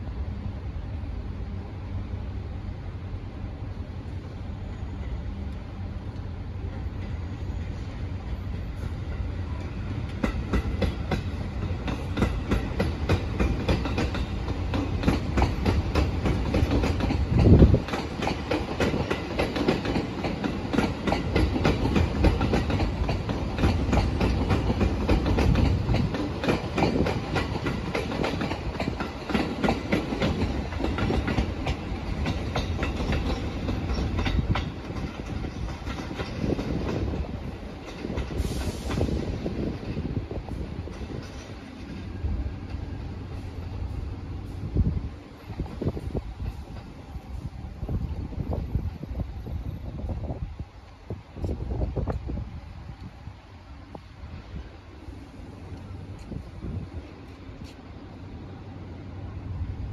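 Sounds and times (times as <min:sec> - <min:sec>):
train running rumble: 0:00.0 - 0:59.9
train wheels clicking over joints: 0:09.0 - 0:43.8.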